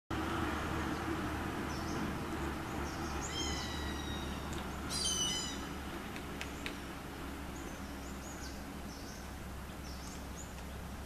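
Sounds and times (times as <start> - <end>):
low rumble and hiss: 0.2 - 11.0
short bird calls: 3.1 - 5.8.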